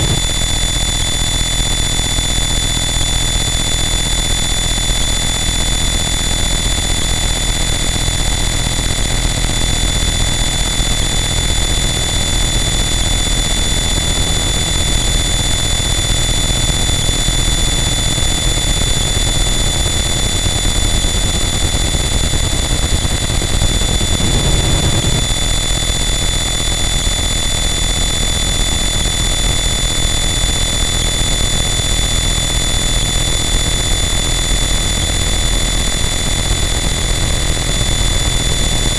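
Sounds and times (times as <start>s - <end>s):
distorted static noise wall: 0.0s - 0.4s, 23.4s - 25.4s.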